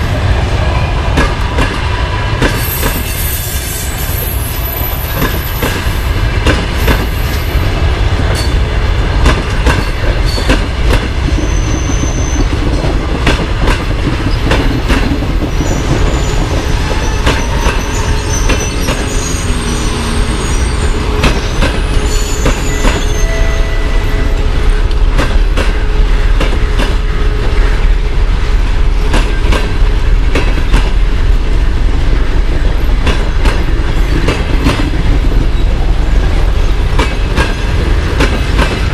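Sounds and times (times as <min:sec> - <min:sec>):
train coaches rumbling: 0:00.0 - 0:38.9
high-pitched wheel squeals: 0:15.6 - 0:24.4.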